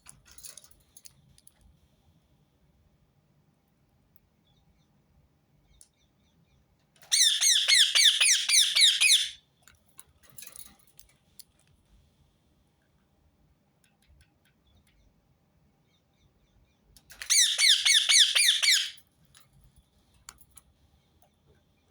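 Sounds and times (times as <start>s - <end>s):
parakeet screeching: 7.1s - 9.4s, 17.2s - 19.0s.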